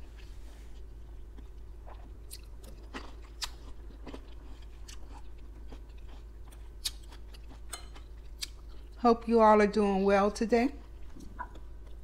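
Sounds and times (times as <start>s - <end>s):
person chewing grapes: 0.0s - 9.0s, 10.8s - 12.0s.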